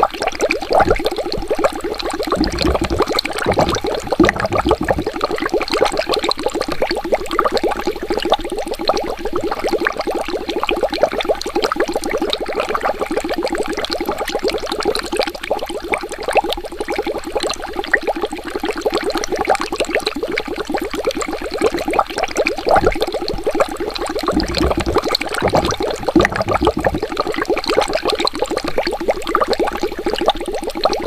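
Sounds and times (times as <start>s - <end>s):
water bubbling: 0.1s - 14.9s, 20.2s - 31.0s
deep low gurgles: 2.2s - 5.6s, 23.6s - 28.0s.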